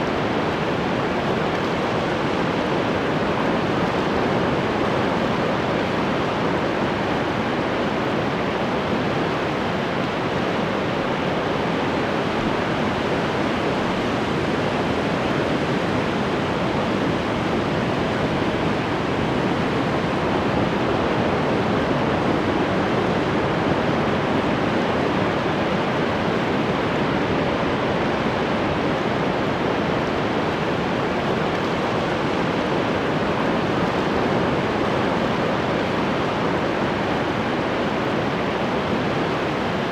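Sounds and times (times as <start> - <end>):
ocean waves breaking: 0.0 - 11.6, 28.7 - 39.9.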